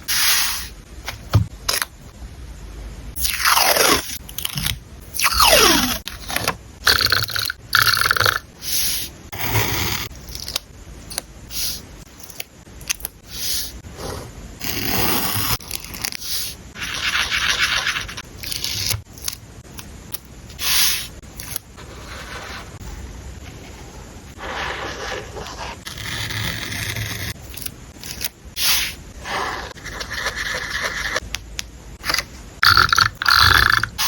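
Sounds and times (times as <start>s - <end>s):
paper rubbing and scraping: 21.8s - 27.3s.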